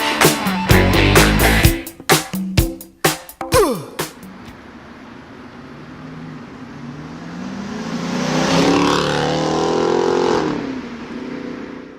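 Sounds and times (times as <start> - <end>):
car engine revving: 4.4 - 11.9.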